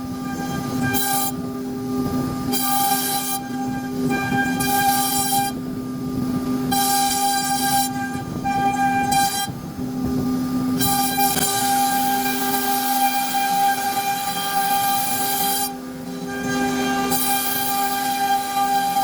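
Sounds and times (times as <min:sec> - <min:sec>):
router spindle whining: 0:10.7 - 0:19.0
router bit cutting wood: 0:16.4 - 0:19.0.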